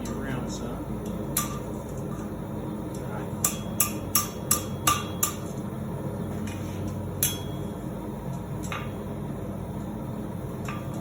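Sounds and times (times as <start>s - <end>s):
steady low hum: 0.0s - 11.0s
hammer striking steel on anvil: 1.3s - 1.7s, 3.4s - 5.6s, 7.2s - 7.8s.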